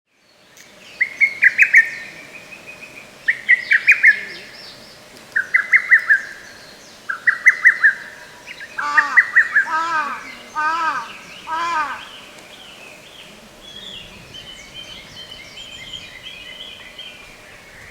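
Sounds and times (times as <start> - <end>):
bird with low arched notes: 0.3 - 17.9
cuckoo singing: 8.8 - 12.6.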